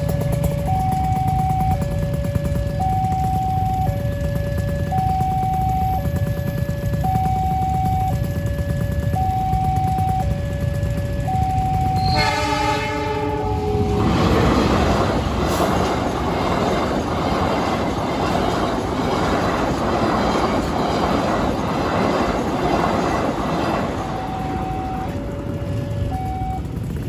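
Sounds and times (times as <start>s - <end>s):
train wheels clattering over rails: 0.0s - 27.0s
two-tone crossing warning alarm: 0.0s - 27.0s
train horn: 12.0s - 15.8s, 23.8s - 26.6s.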